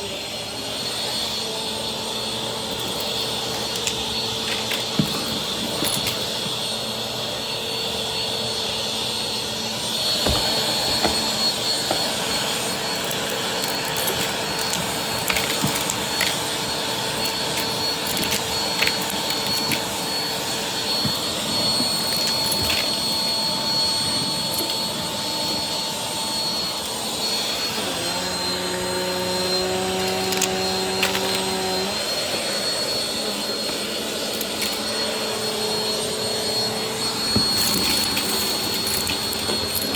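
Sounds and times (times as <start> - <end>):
vacuum cleaner running: 0.0 - 39.9
small clicks: 34.3 - 35.0.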